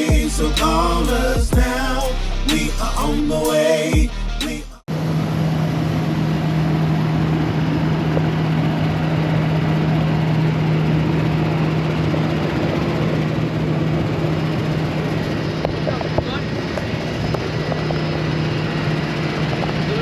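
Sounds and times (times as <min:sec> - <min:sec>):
vehicle engine running: 0:00.1 - 0:03.5.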